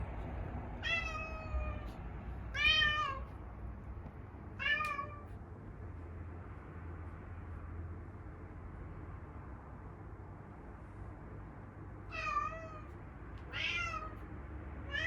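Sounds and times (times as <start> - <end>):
cat meowing: 0.8 - 3.3, 4.6 - 5.3, 12.1 - 14.2.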